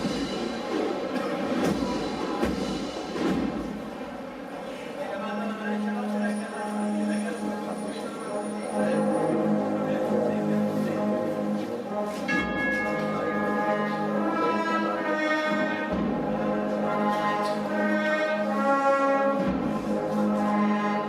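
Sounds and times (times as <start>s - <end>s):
brass and drum band march: 0.0s - 4.0s, 8.4s - 21.0s.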